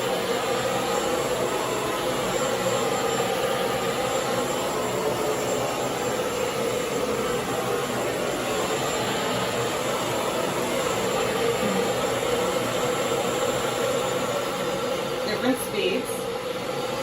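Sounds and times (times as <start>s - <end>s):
vacuum cleaner motor running: 0.0s - 17.0s.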